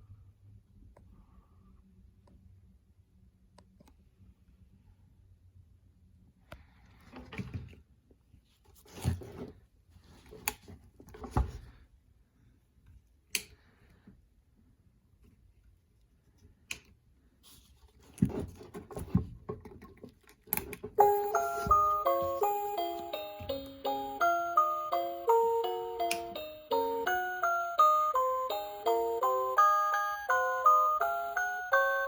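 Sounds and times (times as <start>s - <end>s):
knocks and rustles of handling: 7.0s - 11.9s, 17.5s - 22.7s
chiming tune: 21.0s - 32.0s.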